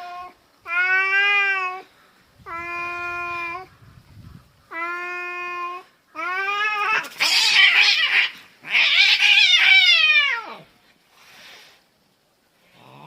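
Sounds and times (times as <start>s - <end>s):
cat yowling: 4.7s - 10.7s.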